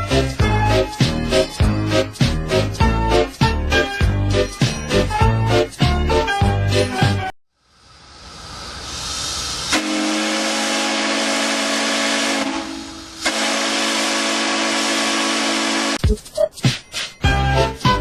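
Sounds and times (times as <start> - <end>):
steam hissing: 7.6 - 11.7
low steam whistle blasts: 9.6 - 16.0.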